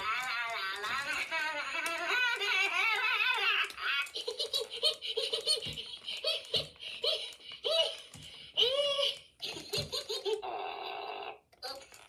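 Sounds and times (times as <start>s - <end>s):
electronic toy giggle: 0.1s - 8.0s, 9.4s - 11.1s.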